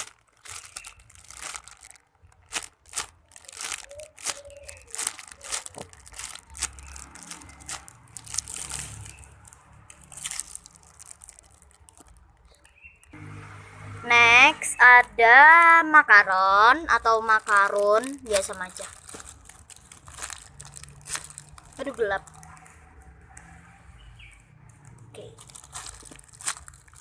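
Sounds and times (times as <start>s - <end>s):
plastic bag crinkling: 0.0s - 13.0s, 17.0s - 22.8s, 24.8s - 27.0s.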